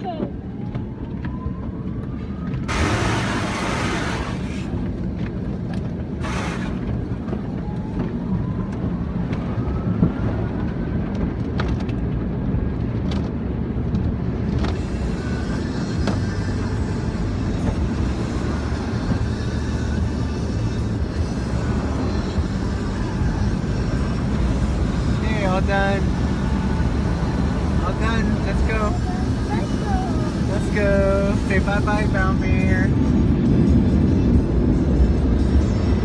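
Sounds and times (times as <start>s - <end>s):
car wash machinery rumble: 2.4s - 36.0s
water spray surges: 2.7s - 4.9s, 6.2s - 7.3s, 23.8s - 32.4s
rising whine: 14.6s - 32.4s
steady hiss: 24.2s - 32.3s.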